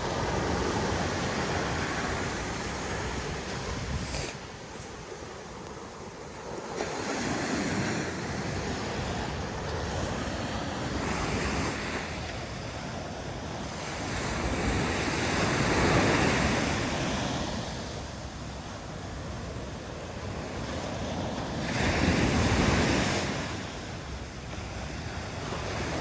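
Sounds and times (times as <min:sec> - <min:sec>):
ocean surf breaking: 0:00.0 - 0:26.0
wind buffeting microphone: 0:00.0 - 0:26.0.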